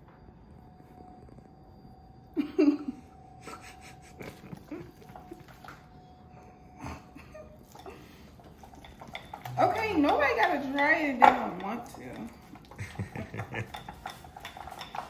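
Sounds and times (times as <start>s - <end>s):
faint steady hum: 0.0s - 15.0s
utensils clinking against bowl: 7.6s - 15.0s.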